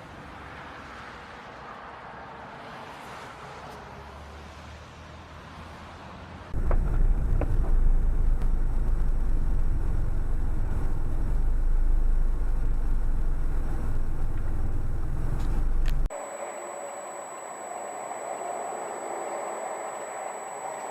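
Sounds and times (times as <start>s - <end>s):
moving car rumble: 6.5s - 16.1s.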